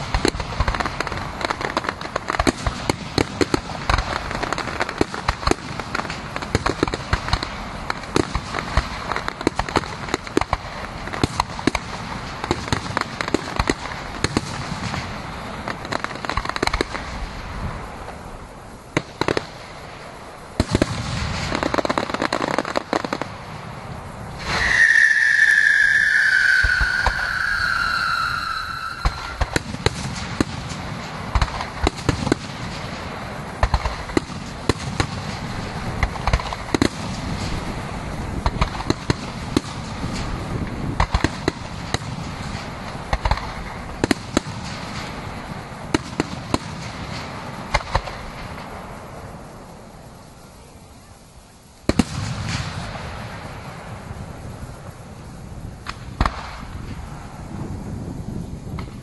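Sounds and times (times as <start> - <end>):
fireworks crackling and popping: 0.0 - 59.0
firework whistle sliding down: 24.3 - 29.9.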